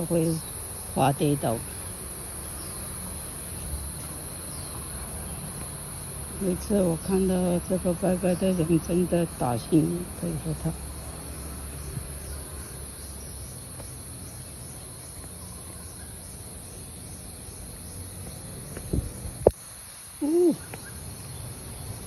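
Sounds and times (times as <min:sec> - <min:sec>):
high-pitched insect chorus: 0:00.0 - 0:22.0
short low voiced sound: 0:20.2 - 0:20.6.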